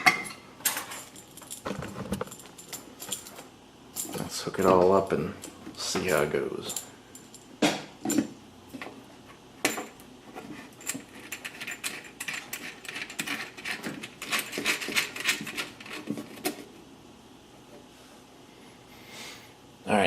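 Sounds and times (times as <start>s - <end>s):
plastic and metal parts clattering: 0.0s - 3.4s.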